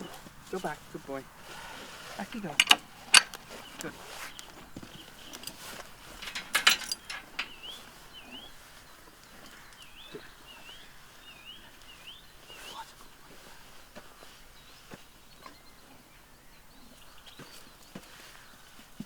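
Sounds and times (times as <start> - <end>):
sharp knocks and clatter: 2.3 - 3.4, 5.3 - 7.8.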